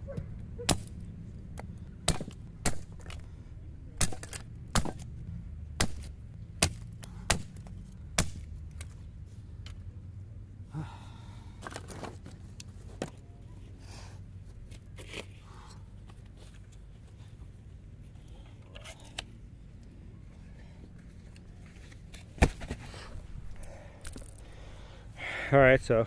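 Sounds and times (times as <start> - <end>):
steady low hum: 0.0 - 26.0
sharp wood chopping strike: 0.6 - 1.0, 2.0 - 3.2, 4.0 - 5.1, 5.8 - 8.5
knocks and scrapes of wood: 21.6 - 23.2.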